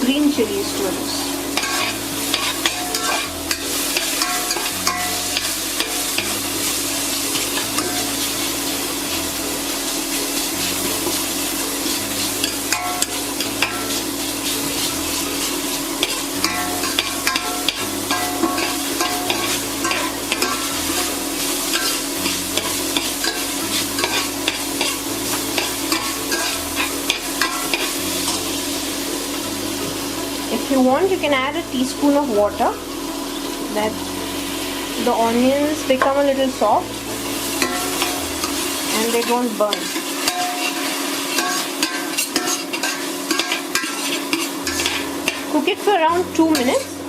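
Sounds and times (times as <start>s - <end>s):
food sizzling in a pan: 0.0s - 47.0s
utensil scraping a pan: 1.5s - 28.7s, 36.0s - 45.7s.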